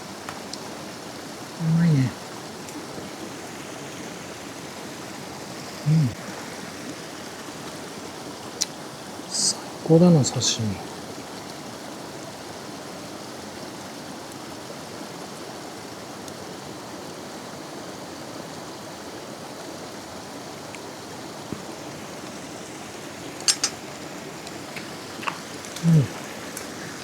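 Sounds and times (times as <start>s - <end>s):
rushing outdoor background noise: 0.0s - 27.0s
sharp click: 23.5s - 23.8s.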